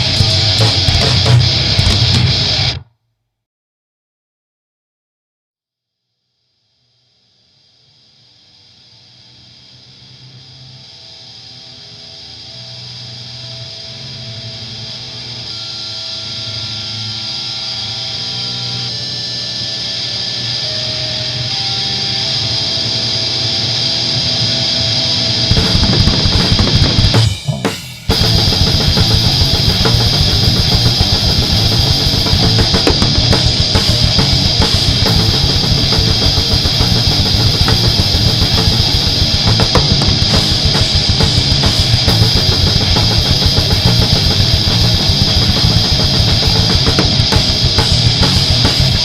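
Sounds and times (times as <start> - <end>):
fast steady drumming: 0.0 - 2.5, 25.5 - 49.0
heavy metal band playing: 0.0 - 2.9, 10.8 - 49.0
distorted electric guitar: 0.0 - 3.0, 6.7 - 49.0.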